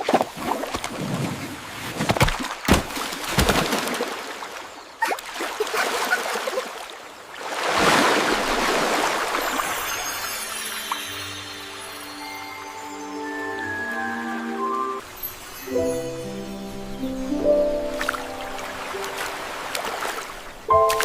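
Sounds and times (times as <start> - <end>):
water sloshing and splashing: 0.0 - 11.1, 17.8 - 21.0
rush of water: 0.0 - 21.0.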